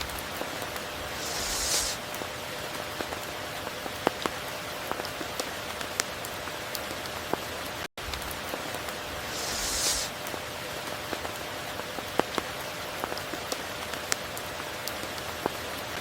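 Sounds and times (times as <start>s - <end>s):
rain hissing: 0.5s - 2.2s, 8.8s - 10.8s.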